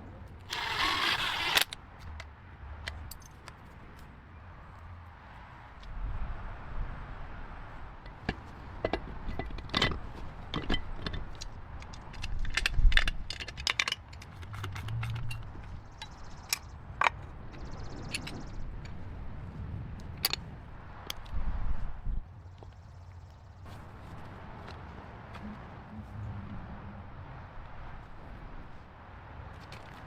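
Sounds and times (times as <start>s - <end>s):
metal tools clinking and knocking: 8.3s - 17.2s.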